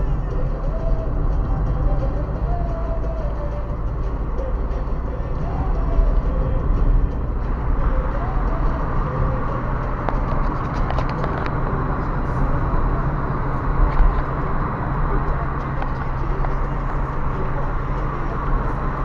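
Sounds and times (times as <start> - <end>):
car engine and road noise: 0.0 - 19.0
rattles: 0.0 - 19.0.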